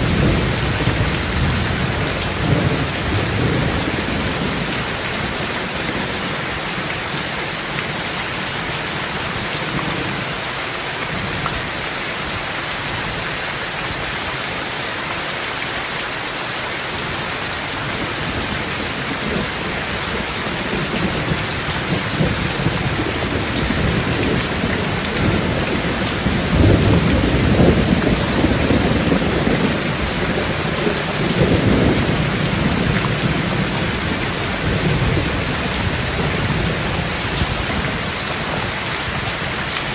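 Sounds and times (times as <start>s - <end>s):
thunder rumbling: 0.0s - 6.2s, 18.3s - 39.5s
rain falling: 0.0s - 39.9s.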